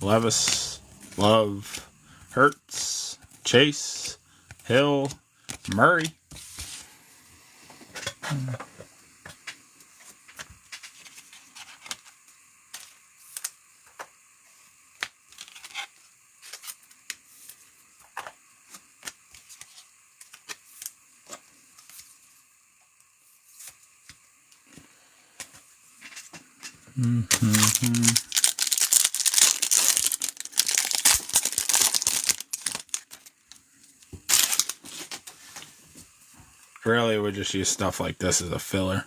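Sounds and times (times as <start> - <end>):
cards being flipped: 0.3 - 1.8, 4.0 - 6.9, 18.7 - 22.2, 23.5 - 24.2, 27.3 - 33.3, 34.0 - 35.3.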